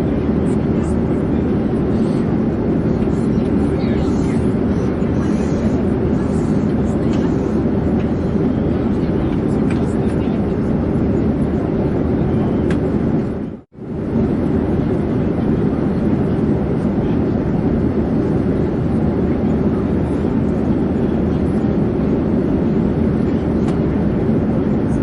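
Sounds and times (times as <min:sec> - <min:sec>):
airplane engine drone: 0:00.0 - 0:25.0.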